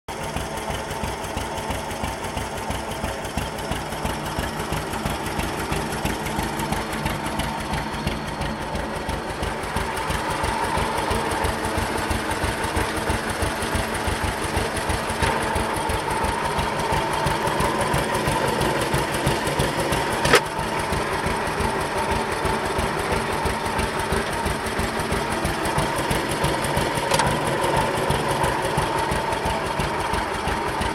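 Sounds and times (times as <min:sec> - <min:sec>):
tractor engine running: 0:00.1 - 0:30.9.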